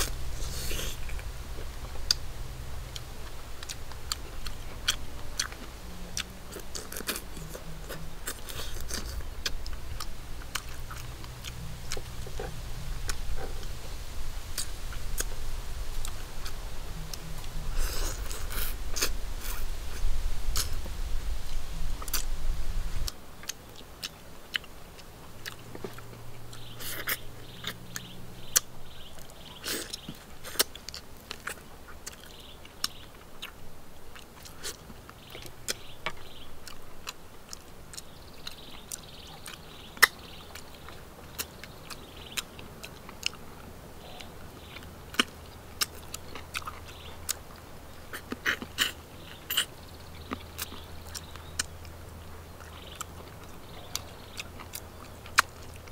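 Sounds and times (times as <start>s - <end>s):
wet chewing and mouth smacks: 0.0s - 13.9s, 14.5s - 22.4s, 23.0s - 55.9s
low rumble: 0.0s - 23.1s.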